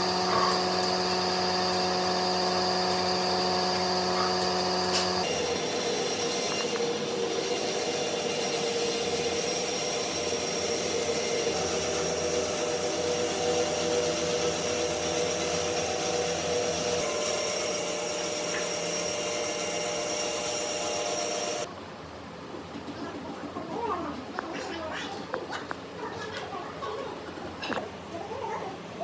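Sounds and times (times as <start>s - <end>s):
power tool cutting wood: 0.0s - 21.7s.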